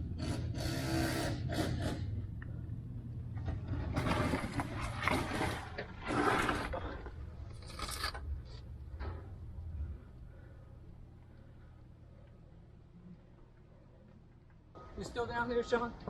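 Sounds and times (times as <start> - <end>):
scraping and rubbing: 3.6 - 8.7.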